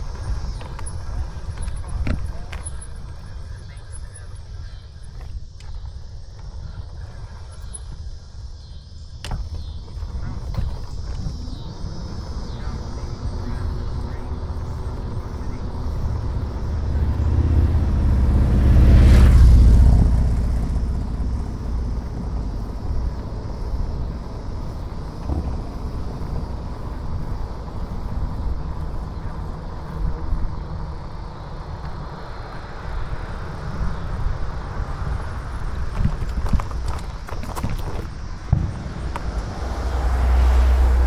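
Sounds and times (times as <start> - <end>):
road rumble: 0.0 - 41.0
wind on microphone: 9.3 - 41.0.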